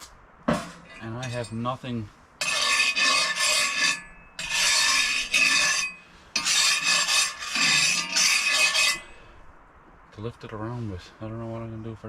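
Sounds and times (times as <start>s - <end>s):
rasping rubbing scrapes: 2.4s - 9.2s.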